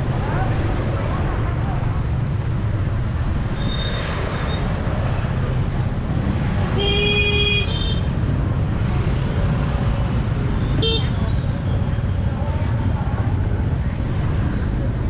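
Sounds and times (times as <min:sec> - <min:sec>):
road traffic rumble: 0:00.0 - 0:15.0
vehicle horn: 0:06.8 - 0:08.1, 0:10.8 - 0:11.3.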